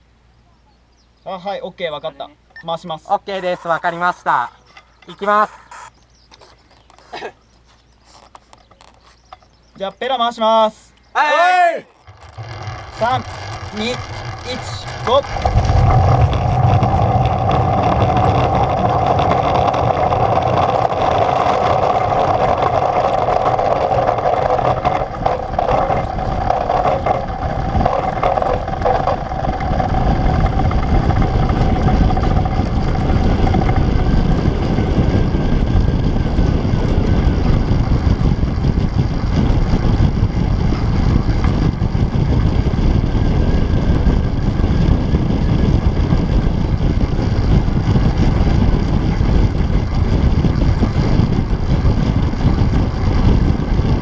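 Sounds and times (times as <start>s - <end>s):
whirring hum: 10.9s - 54.0s
wind rumble on microphone: 11.9s - 54.0s.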